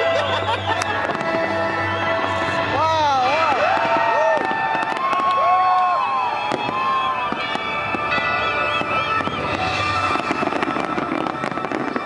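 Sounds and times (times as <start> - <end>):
firework bangs and crackles: 0.0 - 12.0.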